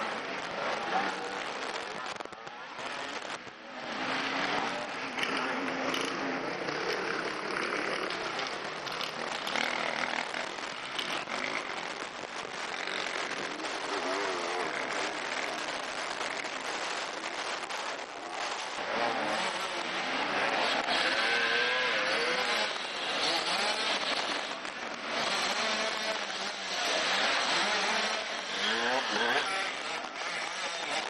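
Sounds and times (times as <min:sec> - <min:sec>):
motorcycle engines revving: 0:00.0 - 0:31.0
rear wheel spinning in mud: 0:04.0 - 0:31.0.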